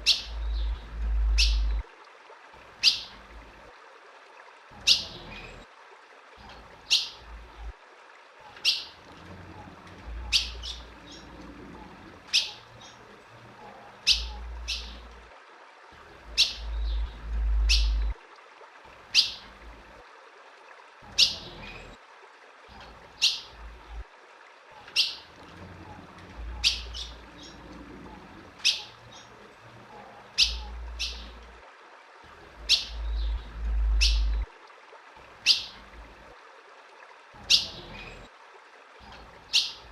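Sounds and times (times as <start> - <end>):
bird chip calls: 0.0 - 1.8, 2.8 - 3.1, 10.2 - 11.3, 12.3 - 13.0, 14.0 - 15.0, 16.3 - 18.1, 19.1 - 19.4, 24.8 - 25.3, 26.4 - 27.6, 28.6 - 29.3, 30.3 - 31.4, 32.6 - 34.5, 35.4 - 35.8, 39.0 - 39.9
low rumble: 0.0 - 1.8, 16.6 - 18.2, 32.9 - 34.5.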